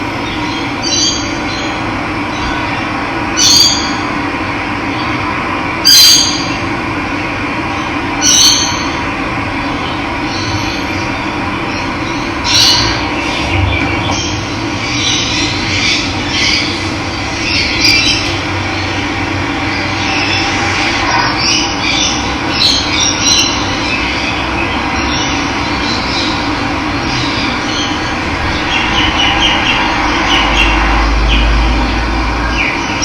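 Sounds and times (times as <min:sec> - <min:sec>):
birds chirping: 0:00.0 - 0:04.0, 0:09.6 - 0:33.0
low rumble: 0:27.1 - 0:33.0.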